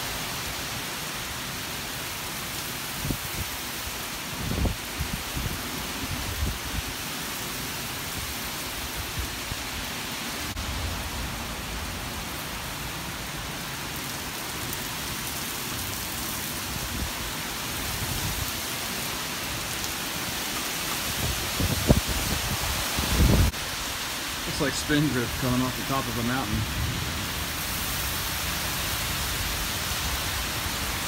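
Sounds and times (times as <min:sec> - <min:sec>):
heavy rain hissing: 0:00.0 - 0:31.0
wind rumbling on microphone: 0:03.0 - 0:03.6, 0:04.3 - 0:07.0, 0:16.7 - 0:18.6, 0:21.0 - 0:23.8.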